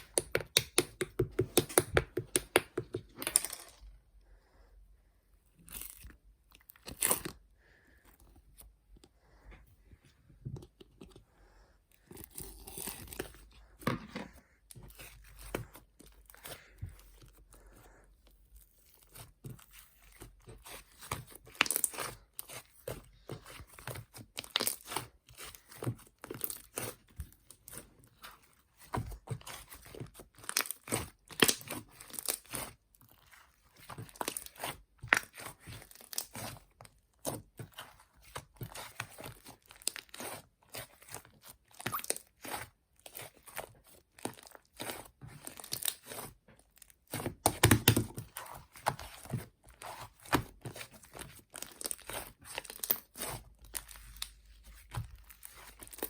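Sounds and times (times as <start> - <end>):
crunching and crinkling: 12.0 - 56.0.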